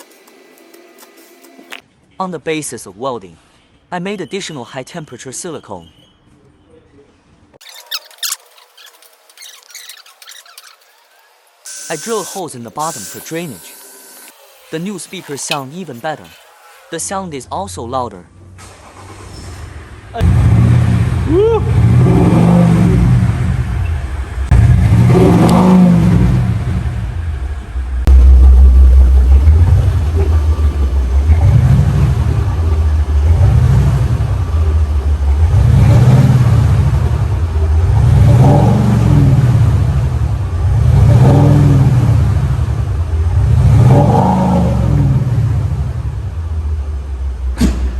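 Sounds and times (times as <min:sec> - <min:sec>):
car engine revving: 0:18.6 - 0:47.9
synthetic exhaust note from speakers: 0:20.2 - 0:46.2.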